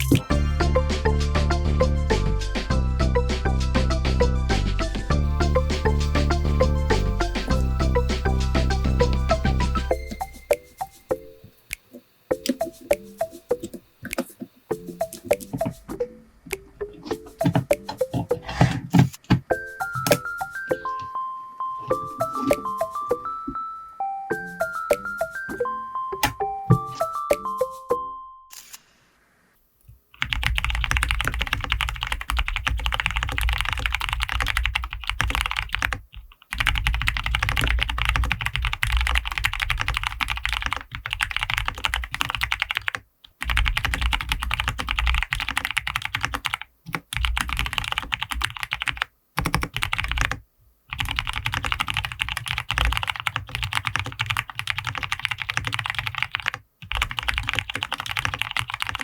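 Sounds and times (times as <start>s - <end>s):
fast typing on mechanical keyboard: 30.2s - 59.0s.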